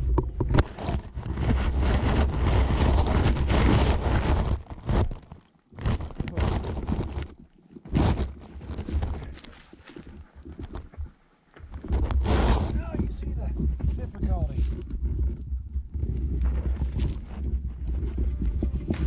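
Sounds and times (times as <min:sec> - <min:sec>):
wind buffeting microphone: 0:00.0 - 0:04.7, 0:11.7 - 0:19.0.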